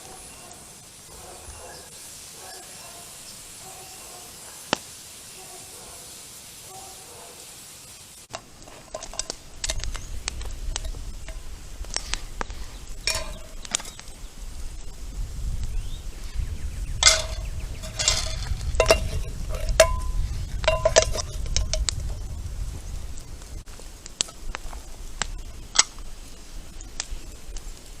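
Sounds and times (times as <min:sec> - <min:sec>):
fire crackling: 0:00.0 - 0:28.0
wood fire hissing: 0:00.0 - 0:28.0
cookware clinking and knocking: 0:08.8 - 0:09.8, 0:13.1 - 0:14.0, 0:17.0 - 0:21.9.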